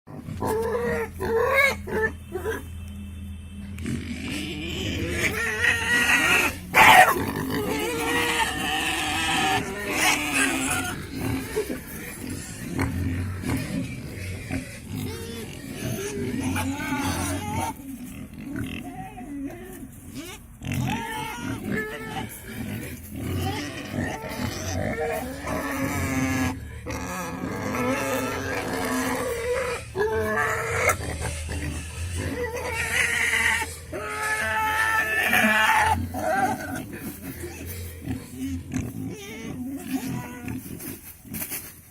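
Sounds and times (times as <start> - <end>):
pigs calling: 0.1 - 2.9, 3.6 - 41.9
pig short loud cry: 0.2 - 2.7, 3.9 - 17.8, 18.6 - 37.7, 38.4 - 40.7.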